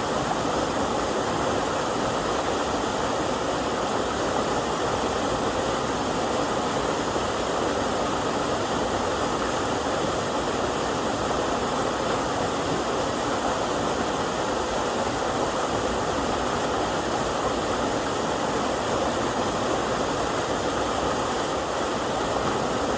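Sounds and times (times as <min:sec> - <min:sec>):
small waterfall rushing: 0:00.0 - 0:22.9.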